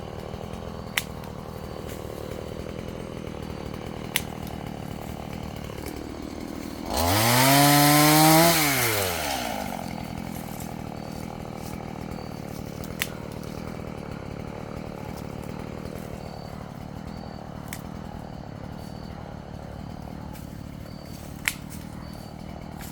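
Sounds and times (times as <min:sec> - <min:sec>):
chainsaw engine idling and revving: 0:00.0 - 0:22.9
sharp clicks: 0:00.8 - 0:02.5, 0:03.8 - 0:06.1, 0:12.8 - 0:13.7, 0:21.3 - 0:22.0.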